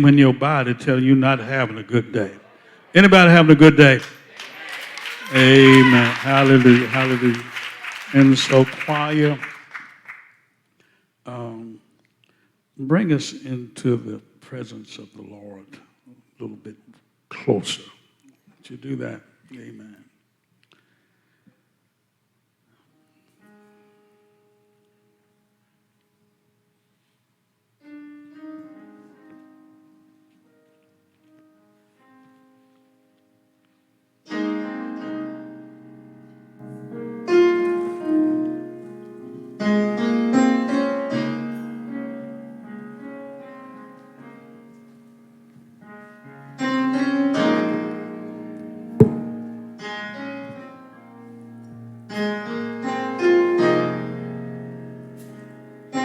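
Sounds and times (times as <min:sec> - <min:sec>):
slow piano chords: 0:34.3 - 0:56.0.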